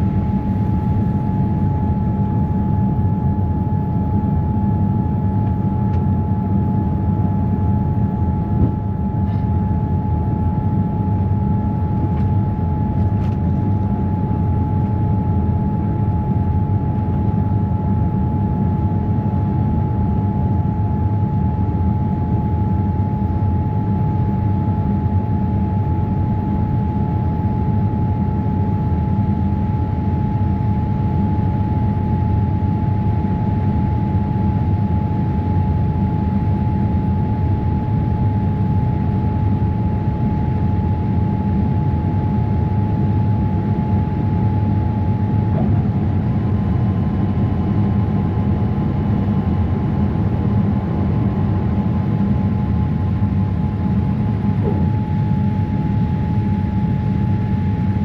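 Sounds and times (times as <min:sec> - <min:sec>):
aircraft cabin engine rumble: 0:00.0 - 0:58.0
thin whine: 0:43.6 - 0:58.0.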